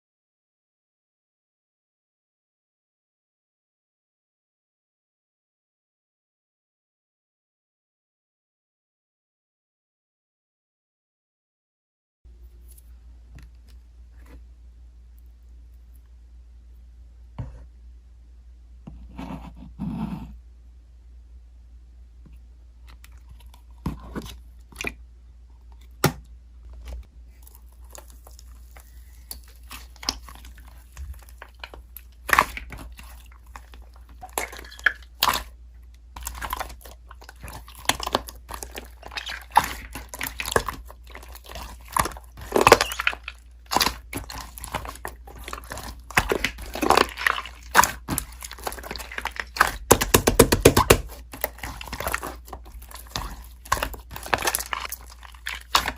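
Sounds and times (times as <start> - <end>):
slime squished by hand: 27.3 - 55.9.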